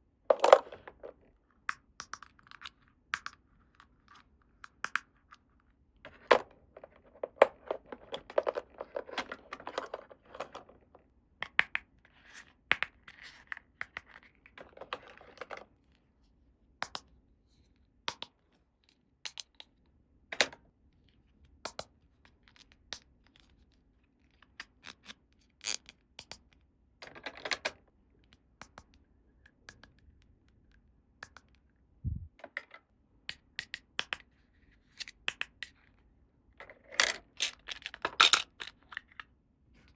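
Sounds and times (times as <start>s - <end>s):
plastic pieces clicking: 0.3s - 1.2s, 6.1s - 11.0s, 36.8s - 39.2s.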